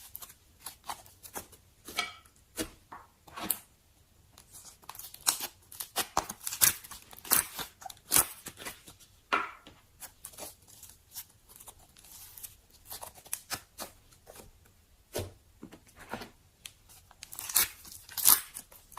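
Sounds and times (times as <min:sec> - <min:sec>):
slime crackling and popping: 0:04.8 - 0:08.9, 0:17.2 - 0:18.9.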